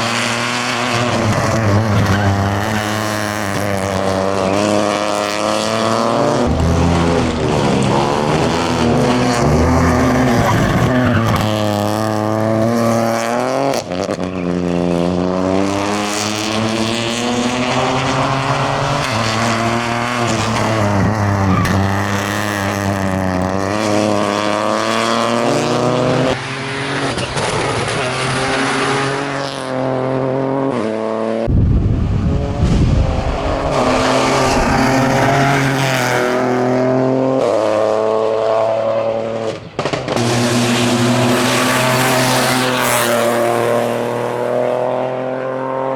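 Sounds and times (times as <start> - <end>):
rough noisy rumble: 0.0 - 12.7, 31.5 - 36.9
rally car engine revving: 0.0 - 45.9.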